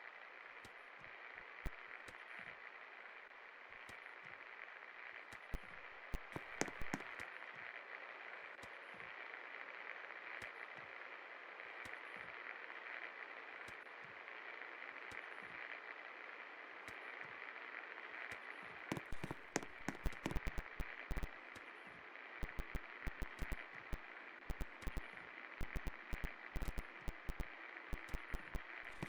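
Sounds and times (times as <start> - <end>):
sharp clicks and knocks: 5.6 - 7.1, 18.9 - 21.3, 22.4 - 29.0.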